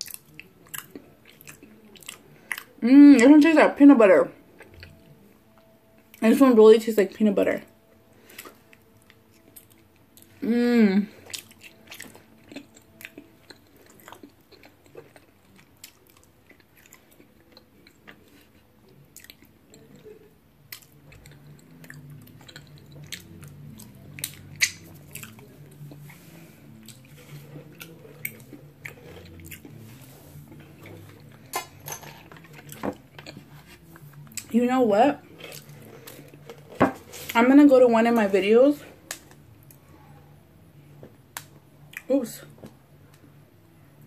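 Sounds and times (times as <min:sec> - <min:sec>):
person humming mm: 0:10.4 - 0:11.2.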